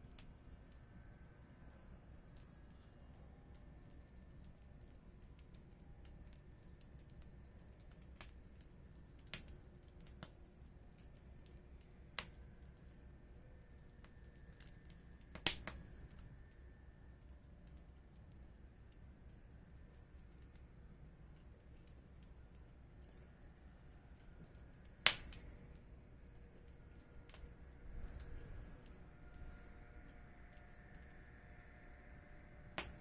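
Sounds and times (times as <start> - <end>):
wood fire crackling: 0.0 - 33.0
sharp pops from burning wood: 1.9 - 13.0, 13.8 - 16.6, 21.3 - 25.9, 26.5 - 29.0, 32.7 - 33.0.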